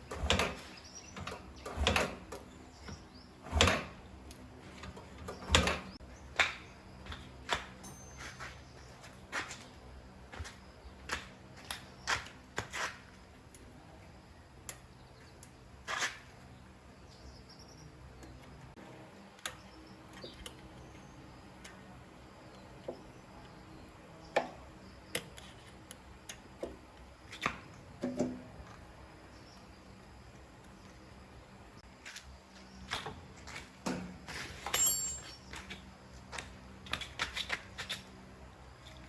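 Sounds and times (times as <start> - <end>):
hand tools clicking and knocking: 34.6 - 38.0.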